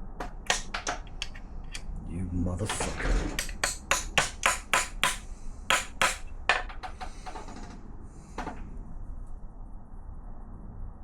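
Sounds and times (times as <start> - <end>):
hammer striking metal: 0.2 - 1.4, 2.6 - 6.8.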